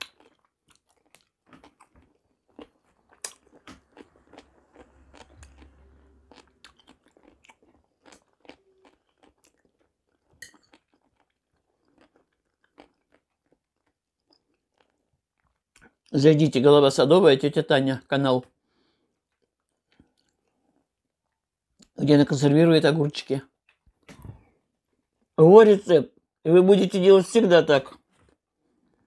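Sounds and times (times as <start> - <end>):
person chewing crunchy food: 0.0 - 16.1, 19.1 - 21.5.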